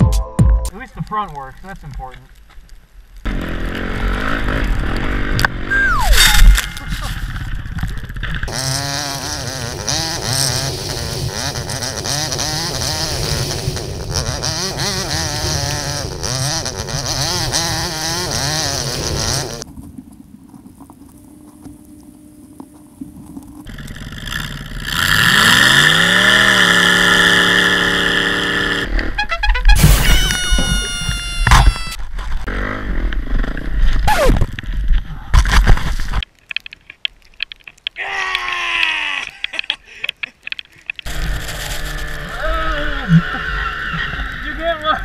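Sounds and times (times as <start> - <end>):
dirt bike engine revving: 3.3 - 19.7, 23.7 - 34.3, 41.0 - 45.0.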